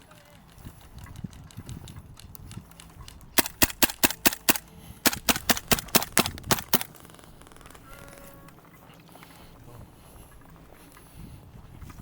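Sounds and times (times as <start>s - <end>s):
airsoft gun shots: 3.4s - 7.8s.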